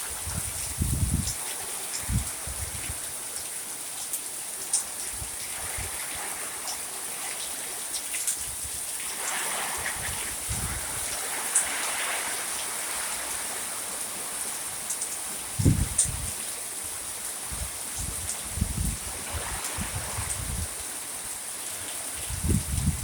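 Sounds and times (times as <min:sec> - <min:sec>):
steady rain hiss: 0:00.0 - 0:23.0
sharp drip ticks: 0:03.4 - 0:05.0.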